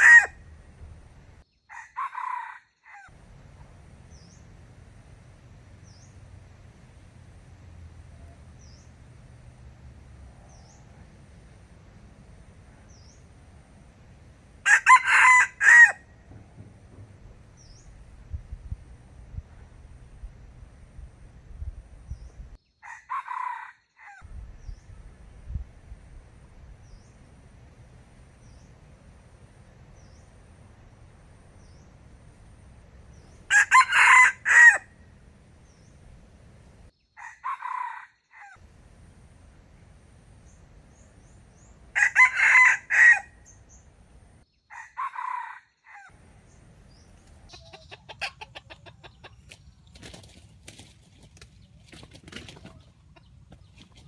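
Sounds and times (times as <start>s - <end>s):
rooster crowing: 0.0s - 0.4s, 1.7s - 3.2s, 14.6s - 16.1s, 22.8s - 24.3s, 33.5s - 35.0s, 37.2s - 38.6s, 41.9s - 43.5s, 44.7s - 46.2s.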